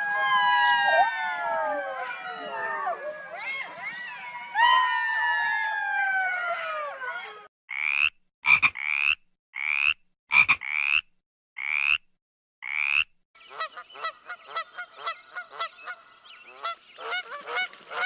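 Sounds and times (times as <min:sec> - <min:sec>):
frog croaking: 0:07.7 - 0:12.0, 0:12.6 - 0:13.1.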